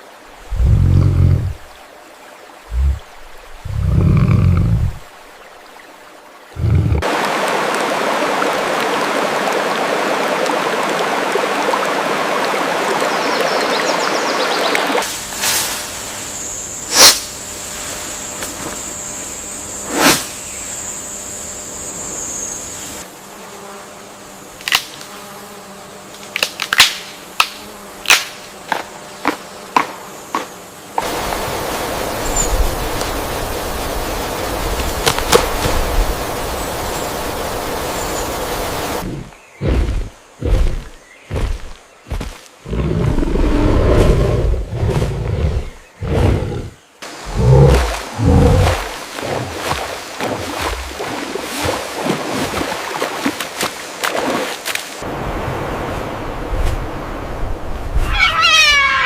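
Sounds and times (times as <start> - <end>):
rushing hiss: 31.0 - 41.8.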